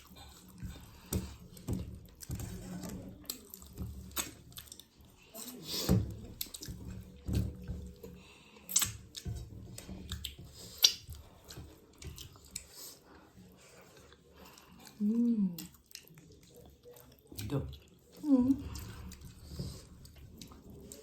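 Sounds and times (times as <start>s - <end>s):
chewing and mouth smacks: 8.5s - 9.2s, 10.1s - 13.1s, 13.8s - 18.2s, 20.0s - 21.0s.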